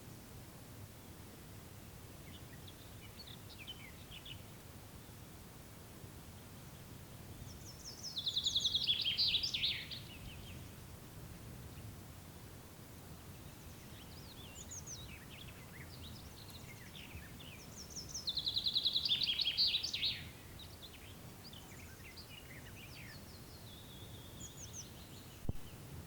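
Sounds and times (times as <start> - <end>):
songbirds chirping: 0.0 - 26.0
faint low rumble: 25.2 - 26.0.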